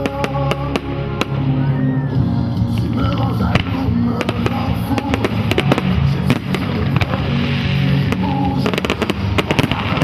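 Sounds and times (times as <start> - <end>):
fireworks bangs and crackling: 0.0 - 1.5, 2.6 - 10.0
accompanying music: 0.0 - 10.0.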